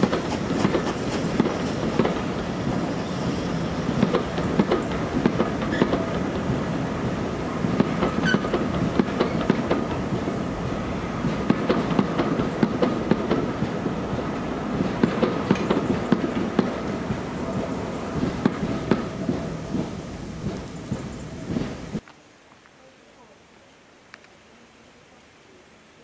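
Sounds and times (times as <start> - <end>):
train wheels clicking over rail joints: 0.0 - 3.0, 3.8 - 10.4, 11.2 - 22.0.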